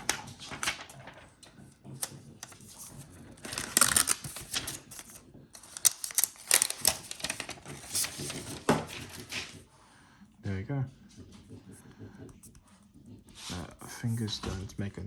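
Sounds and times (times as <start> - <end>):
paper and plastic rustling: 0.0 - 9.7
packaging scraping and crinkling: 2.4 - 9.6.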